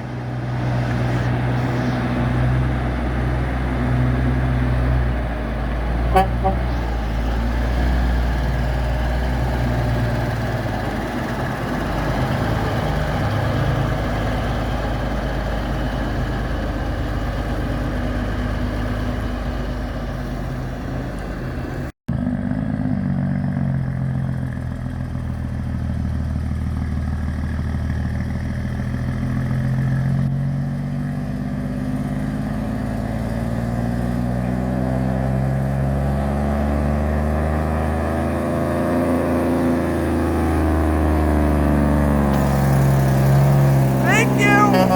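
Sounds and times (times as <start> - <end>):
truck diesel engines running: 0.0 - 29.8, 30.5 - 44.9.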